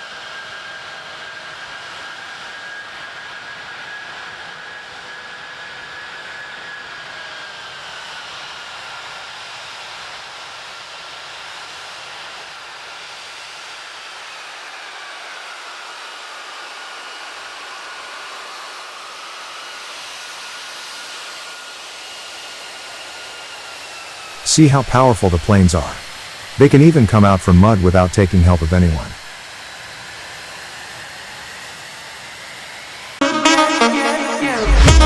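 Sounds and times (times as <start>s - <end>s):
high engine whine: 33.2s - 35.0s.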